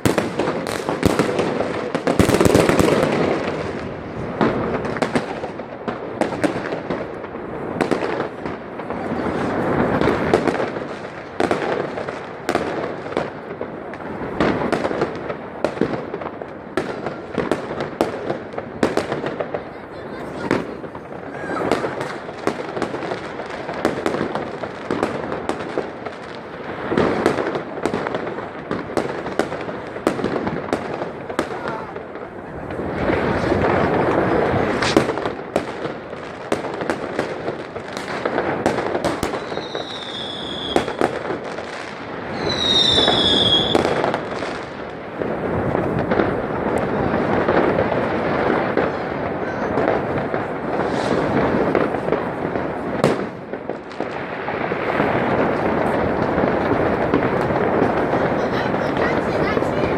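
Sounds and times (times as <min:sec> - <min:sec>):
fireworks bangs and crackling: 0:00.0 - 0:59.9
high falling whistles: 0:42.4 - 0:43.7.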